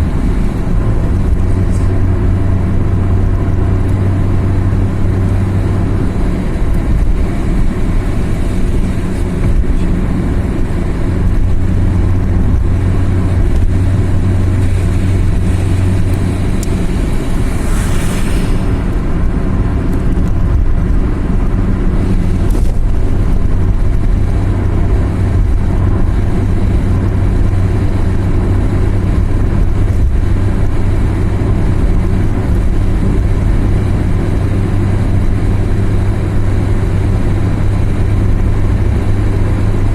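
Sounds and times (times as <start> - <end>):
car engine drone: 0.0 - 39.9
road noise: 0.0 - 39.9
brief rushing hiss: 16.8 - 20.1.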